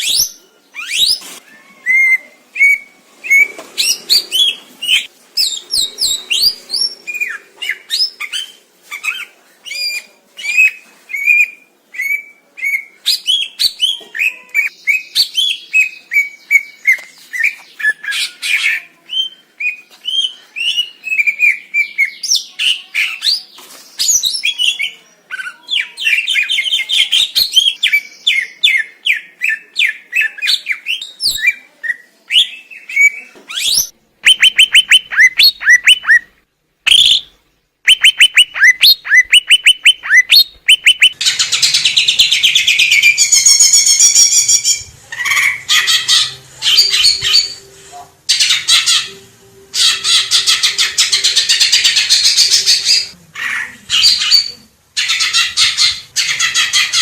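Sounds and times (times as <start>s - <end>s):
bird singing chirps and whistles: 32.3s - 36.3s, 36.9s - 37.3s, 37.9s - 41.2s.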